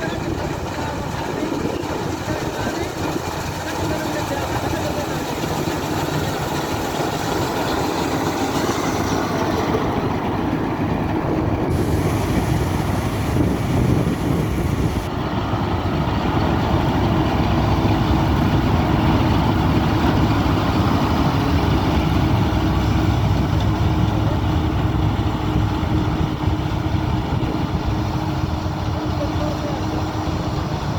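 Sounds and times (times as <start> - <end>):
combine harvester rumble and whirr: 0.0 - 30.9.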